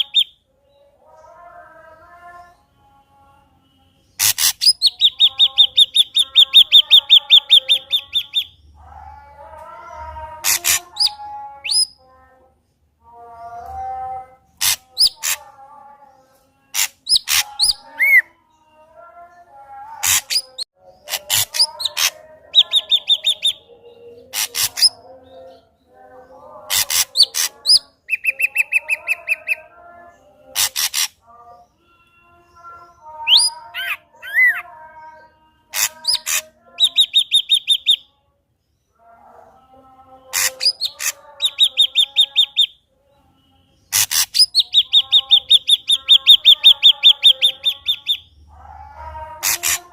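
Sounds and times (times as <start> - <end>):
bird singing varied song: 0.0 - 49.9.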